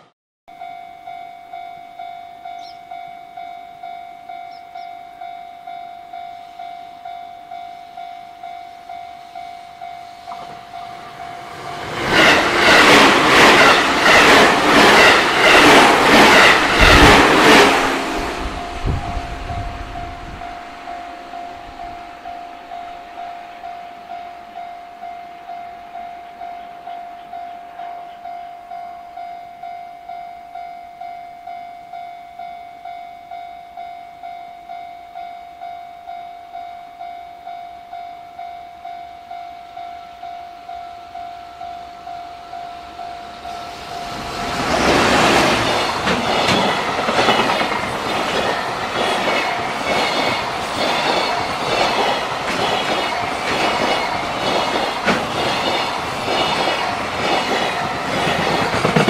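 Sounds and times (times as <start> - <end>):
level-crossing bell ringing: 0.5 - 16.9, 17.5 - 59.0
wheels clattering over rail joints: 44.3 - 59.0.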